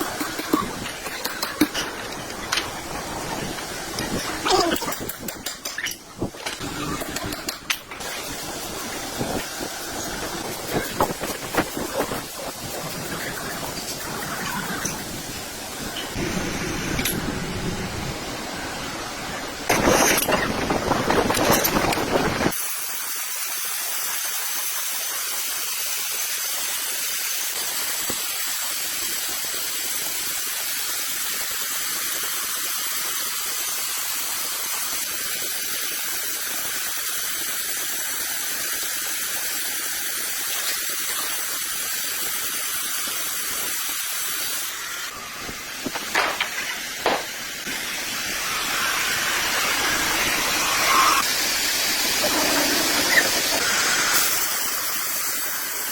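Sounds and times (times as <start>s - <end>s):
sharp knocks: 45.9s - 47.4s.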